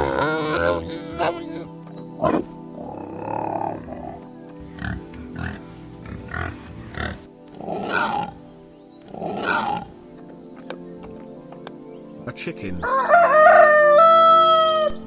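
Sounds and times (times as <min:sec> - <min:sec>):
tapir grunts and squeals: 0:00.0 - 0:10.1
background music: 0:00.0 - 0:15.0.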